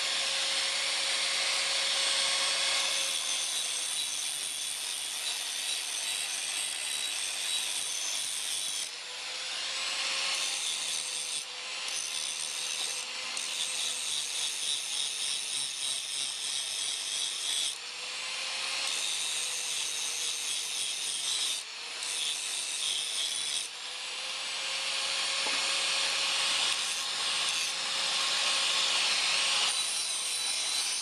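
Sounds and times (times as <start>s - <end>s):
power tool grinding steel: 0.0s - 31.0s.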